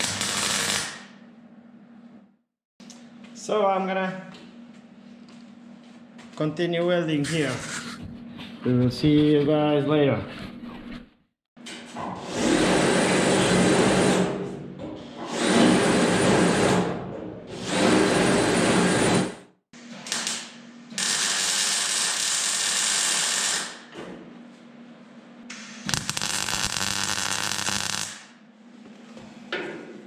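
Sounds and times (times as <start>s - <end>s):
welding crackle: 0.0s - 1.1s, 20.0s - 23.8s, 25.9s - 28.3s.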